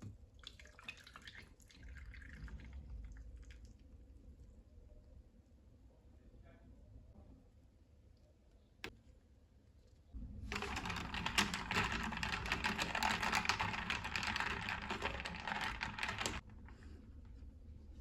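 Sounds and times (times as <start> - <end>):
fast typing on keyboard: 10.5 - 16.5.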